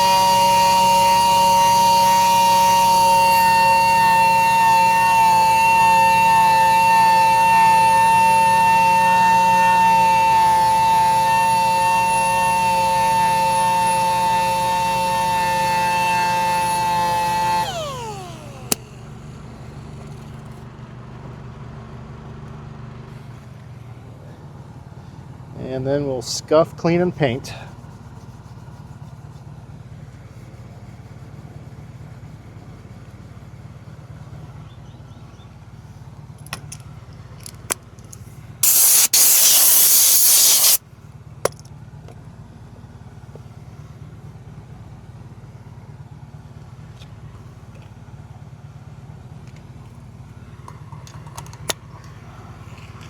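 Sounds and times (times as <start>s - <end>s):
power sander running: 0.0s - 20.2s, 38.6s - 40.8s.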